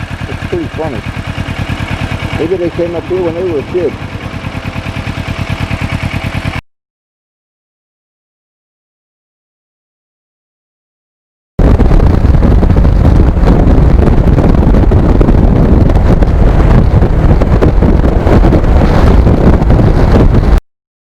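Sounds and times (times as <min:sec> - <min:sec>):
motorcycle engine while riding: 0:00.0 - 0:06.6, 0:11.6 - 0:20.6
wind buffeting on microphone: 0:11.6 - 0:20.6.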